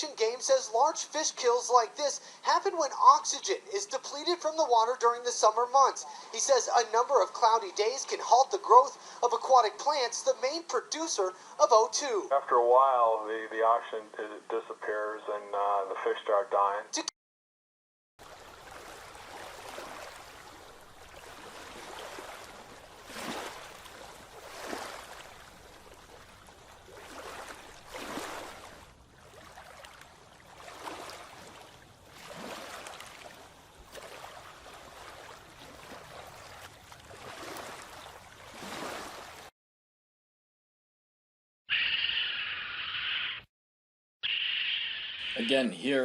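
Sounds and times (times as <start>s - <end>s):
steady water rush: 0.0s - 10.4s, 18.2s - 39.5s
small waves lapping and splashing: 0.2s - 2.5s, 3.1s - 10.0s, 18.2s - 39.5s.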